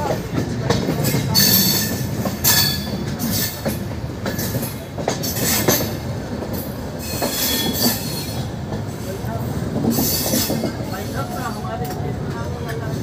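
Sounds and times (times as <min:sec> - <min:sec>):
train coaches rumbling: 0:00.0 - 0:13.0
high wheel squeals: 0:07.0 - 0:08.5.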